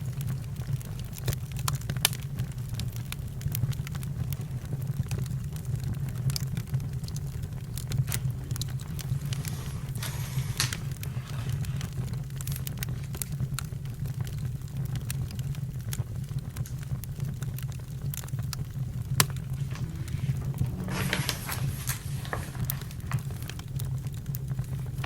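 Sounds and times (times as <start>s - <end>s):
campfire crackling: 0.0s - 25.0s
fire low rumble: 0.0s - 25.0s.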